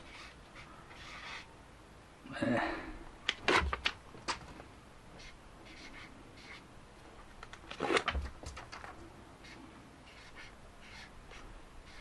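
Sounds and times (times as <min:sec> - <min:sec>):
pen scratching on paper: 0:00.0 - 0:01.5, 0:05.2 - 0:06.6, 0:09.4 - 0:12.0.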